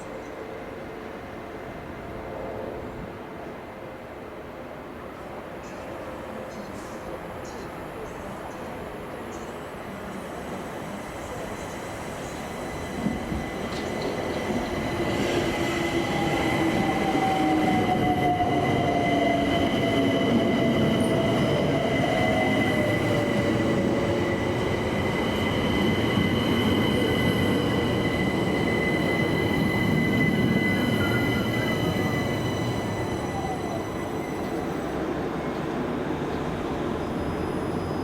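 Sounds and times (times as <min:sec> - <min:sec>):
electric train rumbling: 0:00.0 - 0:38.0
high steady squeal: 0:12.4 - 0:35.0.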